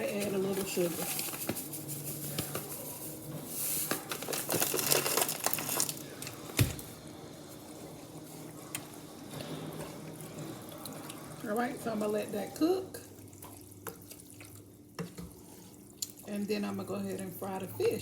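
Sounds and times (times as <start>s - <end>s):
rustling handling noises: 0.0s - 7.6s
sauce stirred in a pot: 7.2s - 17.6s.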